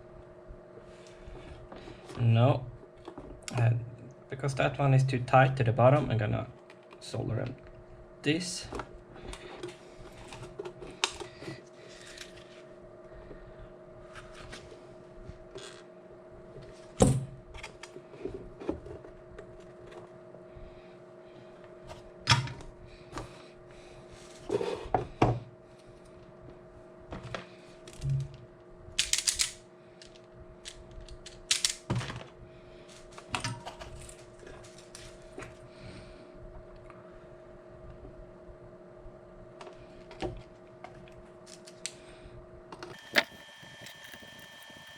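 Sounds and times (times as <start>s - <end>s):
steady hum: 0.0s - 44.9s.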